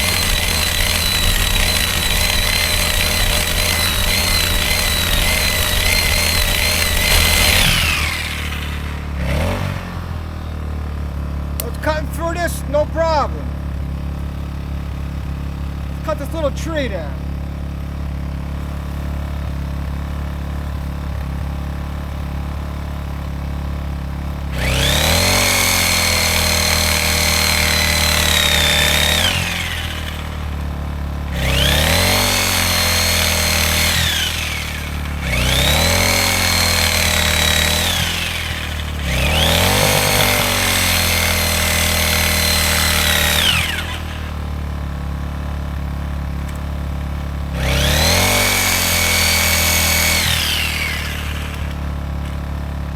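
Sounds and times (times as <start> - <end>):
reciprocating saw cutting wood: 0.0 - 10.3, 24.5 - 44.6, 47.5 - 52.5
generator engine running: 0.0 - 52.9.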